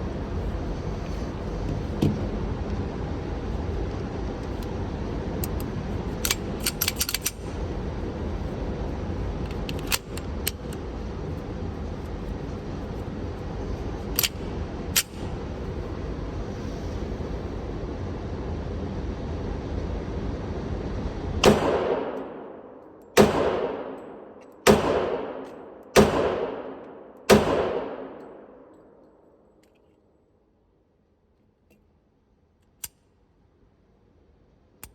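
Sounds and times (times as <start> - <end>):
low background rumble: 0.0 - 29.6.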